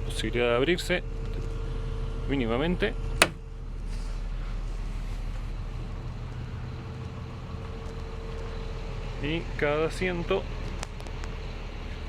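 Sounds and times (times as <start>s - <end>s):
sharp click: 3.2s - 3.4s.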